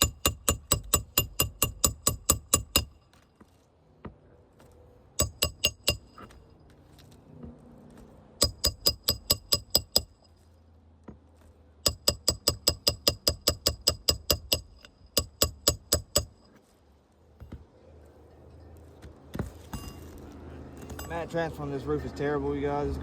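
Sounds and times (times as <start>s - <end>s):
hammer tapping metal: 0.0s - 3.1s, 5.2s - 6.4s, 8.4s - 10.3s, 11.8s - 16.6s.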